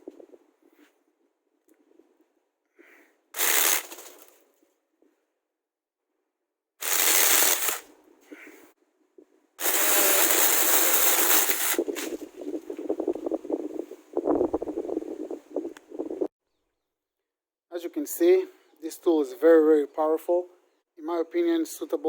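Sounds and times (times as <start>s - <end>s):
electric mini chainsaw running: 3.4s - 3.9s, 6.8s - 7.8s, 9.6s - 11.9s
irregular crackling: 3.4s - 4.4s, 6.8s - 7.9s, 9.6s - 16.3s.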